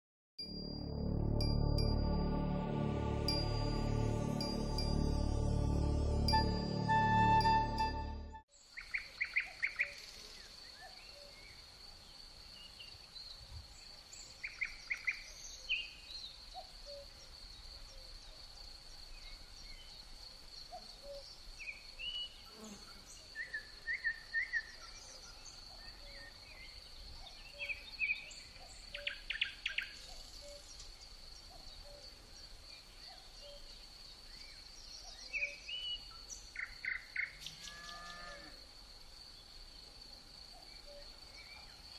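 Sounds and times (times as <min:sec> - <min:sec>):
steady high-pitched tone: 0:00.4 - 0:08.4.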